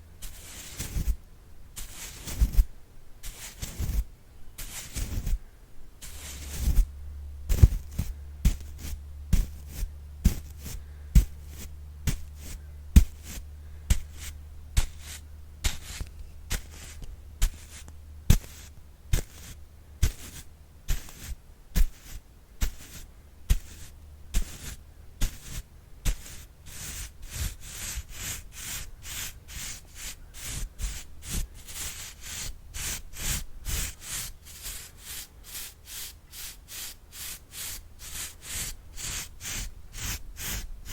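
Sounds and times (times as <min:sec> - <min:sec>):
brush strokes: 0:00.0 - 0:01.2, 0:01.8 - 0:05.4, 0:06.0 - 0:06.9, 0:07.5 - 0:40.9
low hum: 0:05.4 - 0:20.8.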